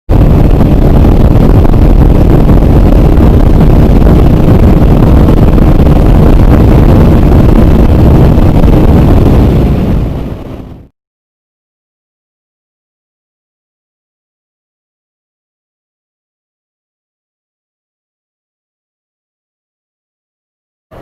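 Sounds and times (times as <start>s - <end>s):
motorcycle engine at speed: 0.1s - 10.9s
wind buffeting on microphone: 0.1s - 10.9s.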